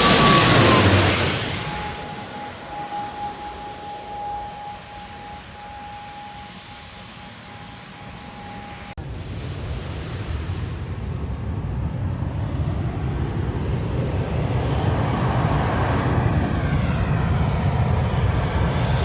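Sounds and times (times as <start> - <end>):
jet airliner engine rumble: 0.0 - 19.0
wind on microphone: 9.0 - 18.7.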